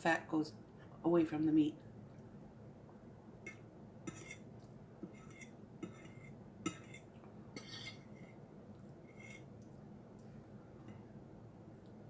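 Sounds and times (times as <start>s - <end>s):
cutlery clinking on a plate: 3.5s - 8.1s.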